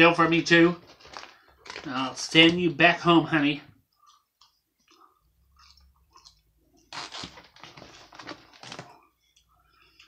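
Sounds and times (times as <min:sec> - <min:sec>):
person chewing food: 0:03.9 - 0:07.0.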